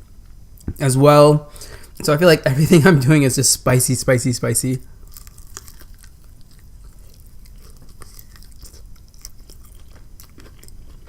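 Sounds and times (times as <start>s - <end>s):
crunchy chewing of fried chicken: 4.8s - 11.0s.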